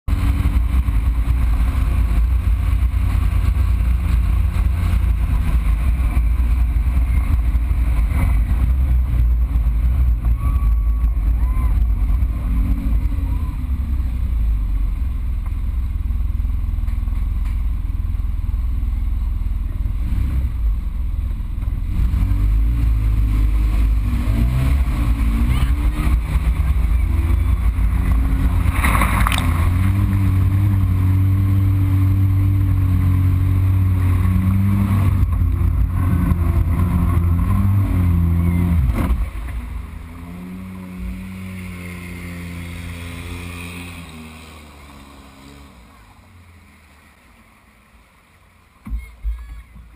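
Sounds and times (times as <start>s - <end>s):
engine revving under load: 19.6s - 47.2s.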